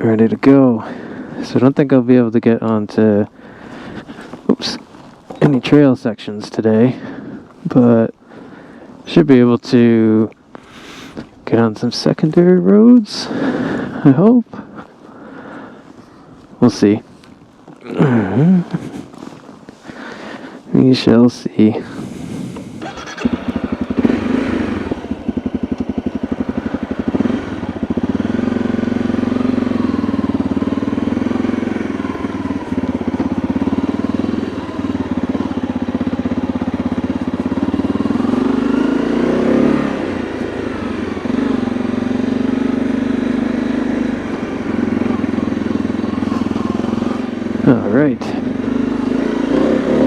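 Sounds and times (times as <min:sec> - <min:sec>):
motorcycle engine running: 0:21.8 - 0:50.0.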